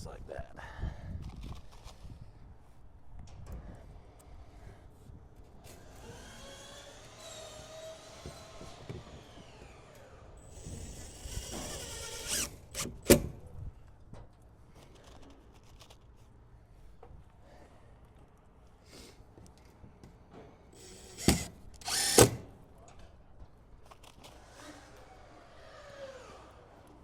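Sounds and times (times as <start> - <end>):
power drill driving screws: 5.7 - 13.4, 20.8 - 22.6.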